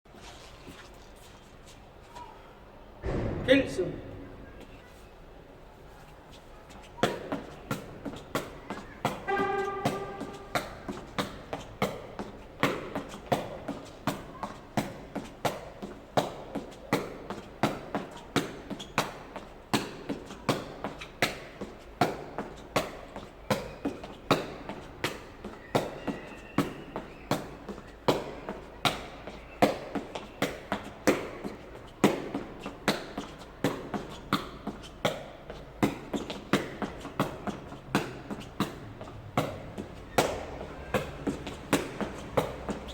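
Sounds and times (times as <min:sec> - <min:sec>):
shuttlecock kicked with foot: 0:03.0 - 0:04.8.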